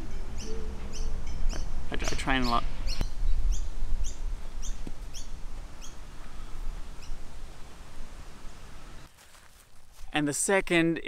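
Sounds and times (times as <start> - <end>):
small bird chirping: 0.0 - 7.2
steady low rumble: 0.0 - 9.1.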